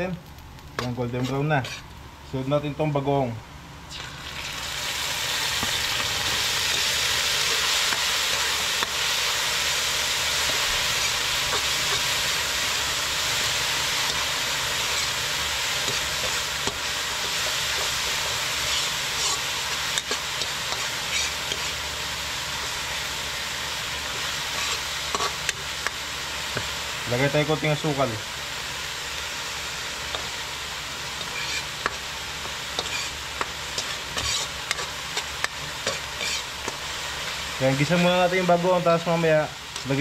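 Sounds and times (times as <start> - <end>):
stirring scrapes: 0.8 - 1.9, 31.2 - 32.0, 32.8 - 33.2, 33.8 - 35.2, 35.8 - 36.6
food sizzling in wok: 3.8 - 40.0.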